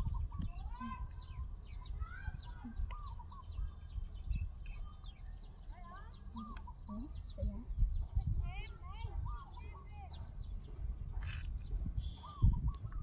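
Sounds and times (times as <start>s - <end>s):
small birds chirping and twittering: 0.0s - 13.0s.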